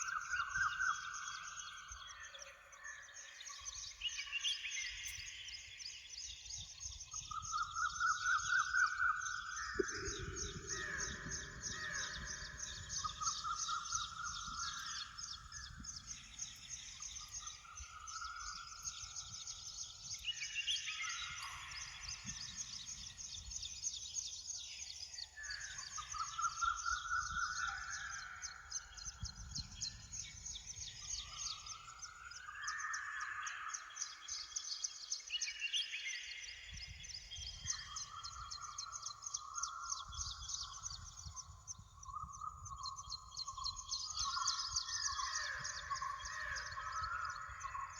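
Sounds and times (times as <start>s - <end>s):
low wind rumble: 9.7s - 17.0s.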